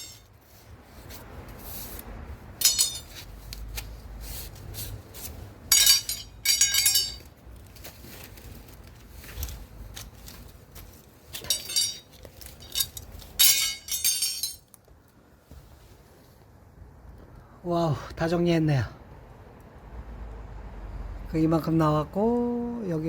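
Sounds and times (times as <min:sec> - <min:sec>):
metal pipes clinking and clattering: 0:00.0 - 0:00.4, 0:02.6 - 0:03.4, 0:05.7 - 0:07.8, 0:11.3 - 0:14.8.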